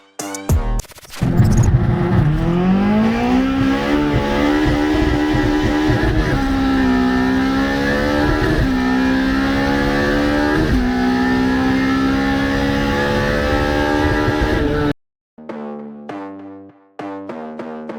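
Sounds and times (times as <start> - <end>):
music: 0.0 - 1.2, 15.4 - 17.9
car engine accelerating through gears: 1.2 - 15.0.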